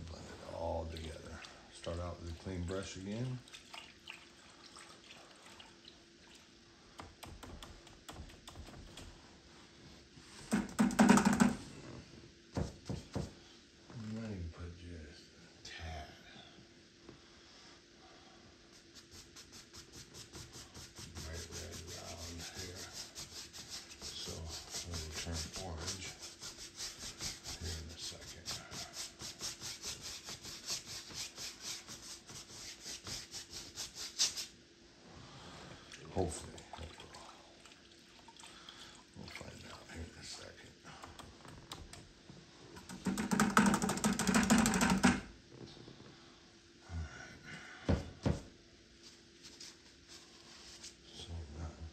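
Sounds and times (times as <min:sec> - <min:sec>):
steady low hum: 0:00.0 - 0:51.9
paintbrush scrubbing canvas: 0:18.6 - 0:34.6, 0:49.0 - 0:51.0.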